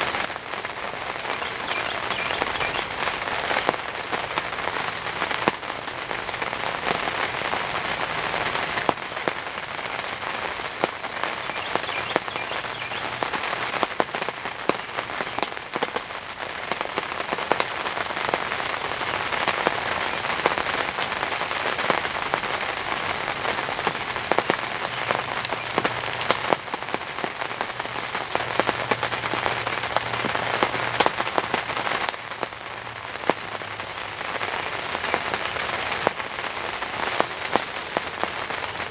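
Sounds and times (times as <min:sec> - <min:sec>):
heavy rain: 0:00.0 - 0:38.9
raindrops ticking: 0:00.0 - 0:38.9.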